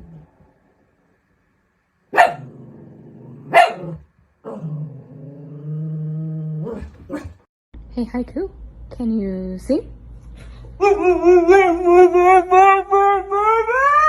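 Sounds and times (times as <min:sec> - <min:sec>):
dog barking: 0:02.1 - 0:02.6, 0:03.4 - 0:04.7, 0:06.6 - 0:07.4.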